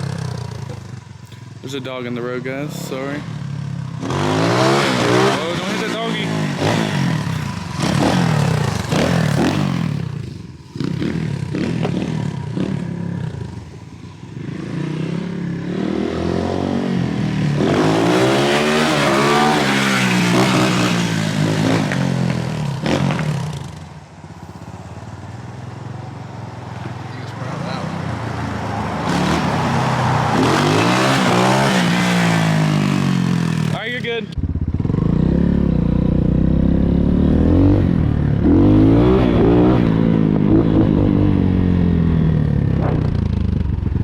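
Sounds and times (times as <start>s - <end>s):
dirt bike engine revving: 0.0s - 23.9s, 27.5s - 44.0s.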